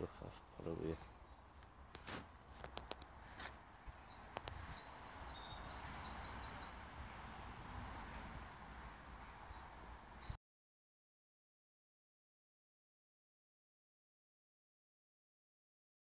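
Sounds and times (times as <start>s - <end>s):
outdoor background noise: 0.0s - 10.4s
songbird chirps and trills: 0.0s - 10.4s
sharp clicks: 1.6s - 3.2s, 4.3s - 4.6s.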